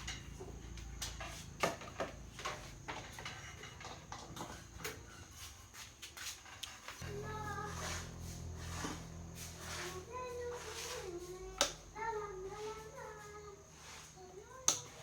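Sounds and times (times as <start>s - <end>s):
faint low hum: 7.0s - 15.0s.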